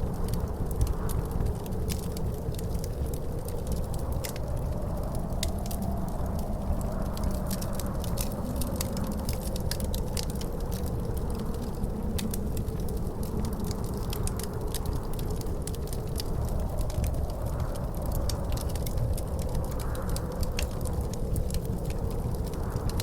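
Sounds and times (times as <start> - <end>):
howling wind: 0.0 - 23.0
wood fire crackling and popping: 0.0 - 23.0.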